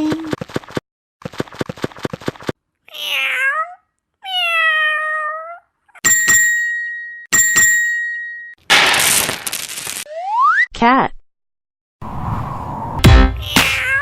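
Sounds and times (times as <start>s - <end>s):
cat meowing: 2.9s - 5.7s, 13.4s - 14.0s
bell-like dings: 6.0s - 8.6s.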